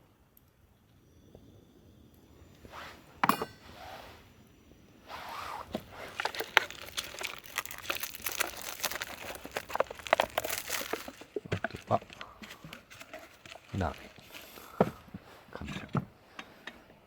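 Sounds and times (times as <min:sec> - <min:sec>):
sharp clink: 0:03.2 - 0:03.9
plastic packaging crinkling: 0:05.1 - 0:14.8.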